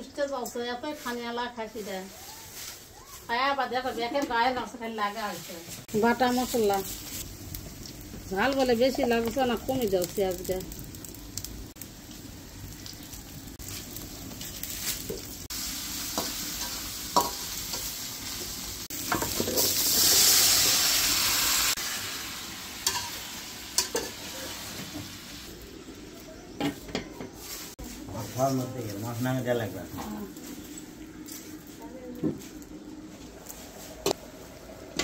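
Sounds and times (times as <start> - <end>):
paste sizzling in oil: 0.3 - 26.5
vegetables hissing in hot oil: 0.8 - 35.0.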